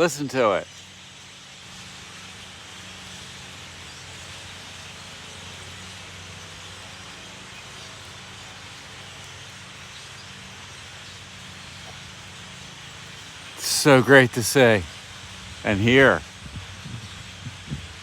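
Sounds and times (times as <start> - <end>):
flock of birds chattering: 6.5 - 18.0.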